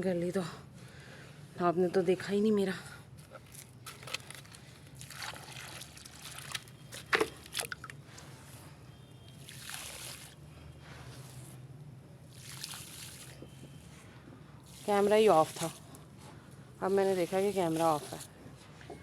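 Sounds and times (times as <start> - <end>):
wet paste sloshing: 3.4 - 8.3, 9.3 - 11.2, 12.3 - 13.4.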